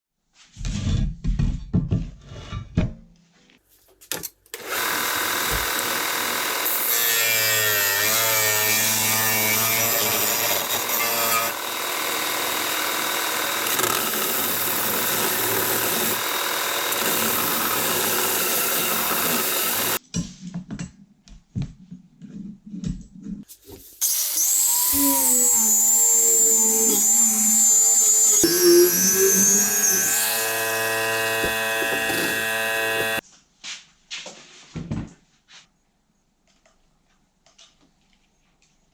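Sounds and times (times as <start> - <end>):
power tool cutting metal: 4.6 - 20.0, 24.0 - 33.2.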